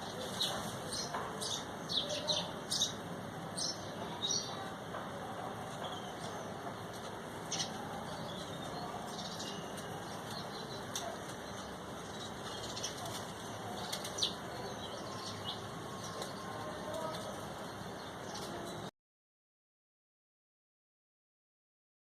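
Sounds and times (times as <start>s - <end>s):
small birds' wings fluttering: 9.0s - 14.6s.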